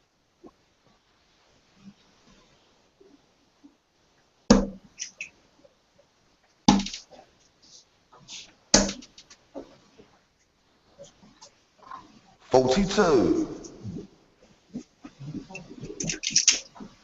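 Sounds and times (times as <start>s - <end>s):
darts hitting a dartboard: 4.5s - 4.8s, 6.7s - 7.0s, 8.8s - 9.0s
small clicks: 16.0s - 16.7s.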